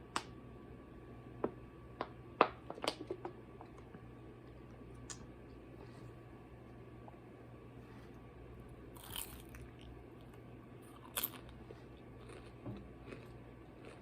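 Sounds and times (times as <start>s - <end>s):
crisp crunching bites: 9.0s - 9.9s, 10.9s - 11.6s
soft chewing clicks: 9.0s - 14.0s.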